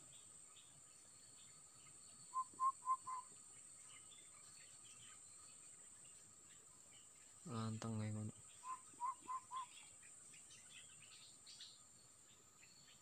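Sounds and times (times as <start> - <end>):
bird whistling notes: 2.3 - 3.3, 8.6 - 9.8.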